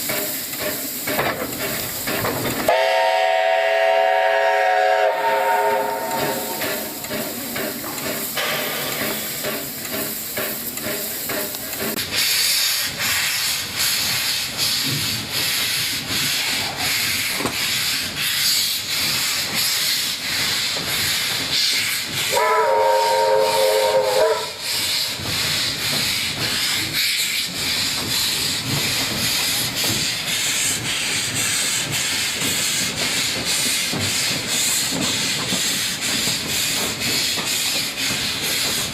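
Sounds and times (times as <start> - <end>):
steam hissing: 0.0 - 38.9
steam locomotive exhaust beating: 0.0 - 38.9
locomotive whistle blast: 2.7 - 7.0, 22.3 - 24.7.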